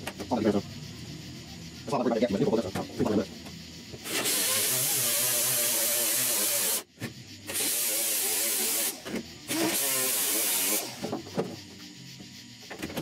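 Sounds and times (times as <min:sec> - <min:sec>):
welding arc crackling hiss: 0:04.0 - 0:11.0.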